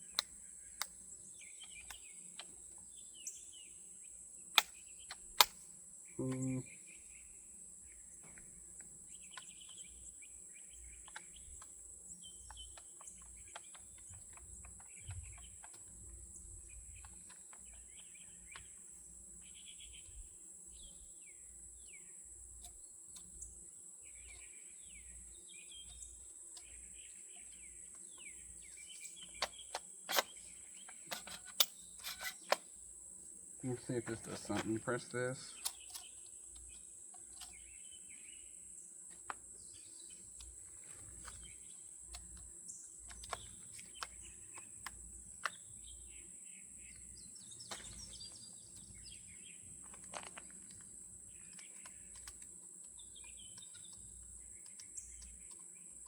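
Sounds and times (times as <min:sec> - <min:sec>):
birds chirping: 0:00.0 - 0:56.0
insect drone: 0:00.0 - 0:56.0
sharp clicks: 0:01.6 - 0:02.6, 0:04.5 - 0:06.6, 0:28.6 - 0:32.7, 0:40.4 - 0:45.7, 0:49.8 - 0:55.7.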